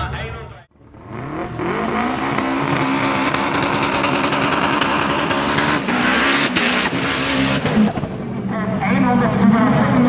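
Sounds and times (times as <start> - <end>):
race car engine at high revs: 0.8 - 10.0
sharp engine pops: 5.1 - 8.3.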